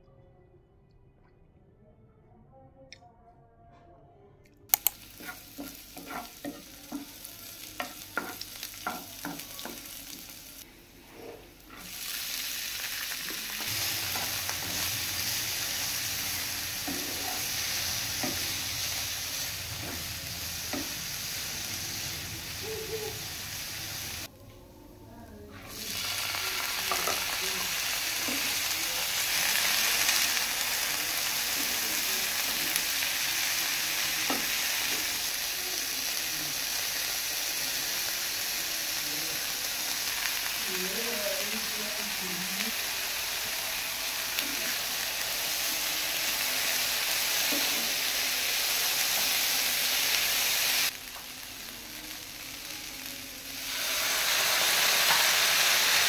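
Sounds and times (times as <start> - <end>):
vegetables sizzling in oil: 4.7 - 24.3, 25.6 - 56.0
spatula scraping a pan: 5.1 - 6.6.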